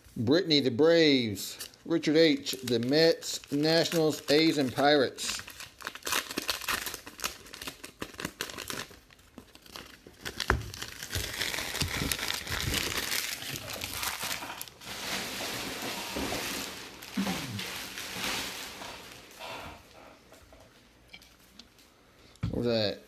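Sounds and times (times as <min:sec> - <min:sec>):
card wrappers crinkling: 0:01.5 - 0:19.6.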